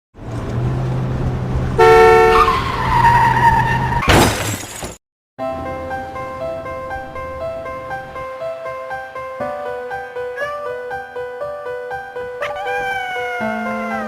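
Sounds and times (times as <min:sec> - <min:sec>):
engine hum: 0:00.2 - 0:04.0
car horn blast: 0:01.8 - 0:02.6
crash with shattering: 0:04.0 - 0:05.0
gentle piano music: 0:05.4 - 0:14.0.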